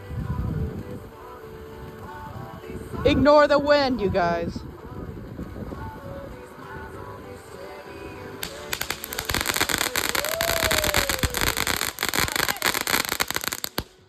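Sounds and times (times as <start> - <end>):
firework fountain crackling: 0.0 - 14.0
firework sharp crack: 7.4 - 14.0
firework whistle: 8.4 - 14.0.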